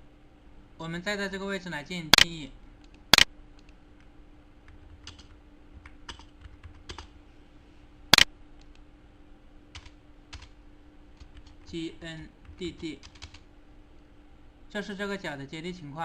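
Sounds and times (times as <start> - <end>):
faint steady hum: 0.0 - 16.0
keyboard typing: 4.6 - 7.1, 9.7 - 10.6, 11.2 - 11.8, 12.4 - 13.4.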